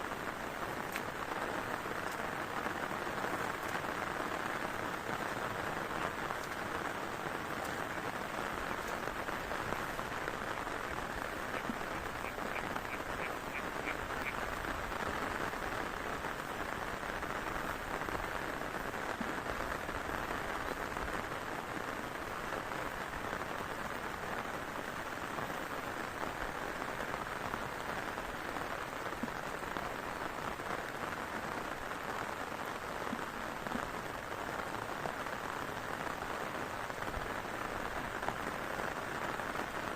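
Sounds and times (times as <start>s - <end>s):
heavy rain: 0.0s - 39.9s
animal calls: 11.5s - 14.4s.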